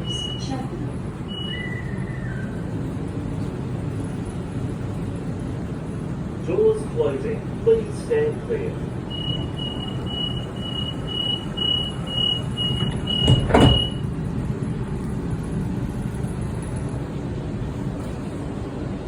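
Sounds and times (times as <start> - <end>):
high warning beeps: 0.0 - 0.6, 1.3 - 2.0, 9.1 - 14.1
train carriage low rumble: 0.0 - 19.0
train doors shutting thud: 9.2 - 14.1.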